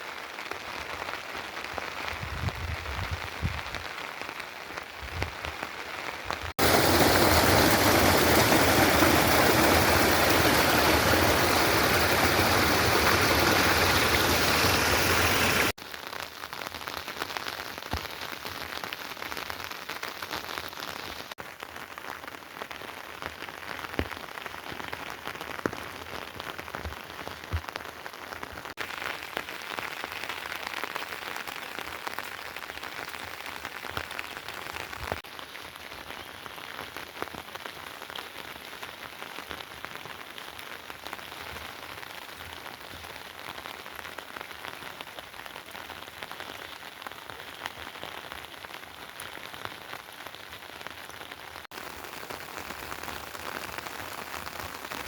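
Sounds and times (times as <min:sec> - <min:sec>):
rain falling: 0:00.0 - 0:55.0
heavy rain rushing: 0:06.5 - 0:15.8.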